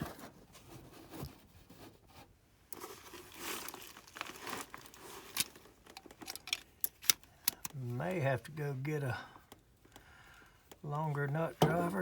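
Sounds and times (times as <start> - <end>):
rustling handling noise: 0.0 - 8.8.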